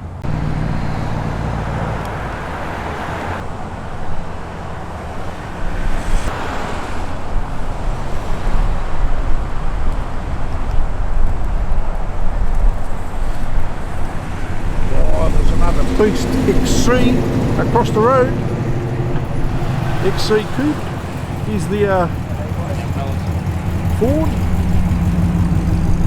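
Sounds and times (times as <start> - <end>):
car engine passing by: 0.2 - 10.6, 12.7 - 26.0
wind buffeting microphone: 7.0 - 26.0.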